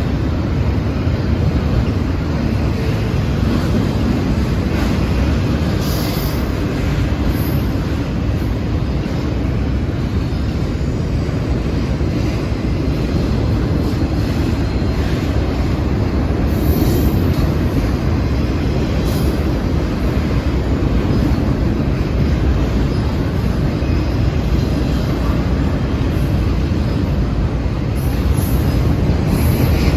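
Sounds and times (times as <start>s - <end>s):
train wheels rumbling on rail: 0.0s - 29.9s.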